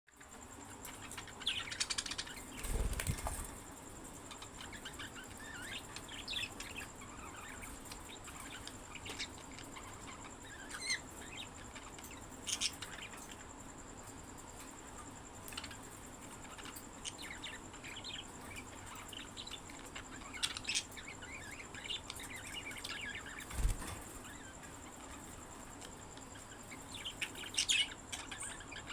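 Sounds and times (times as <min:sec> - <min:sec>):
wing flapping: 0:02.4 - 0:03.7, 0:23.3 - 0:24.4.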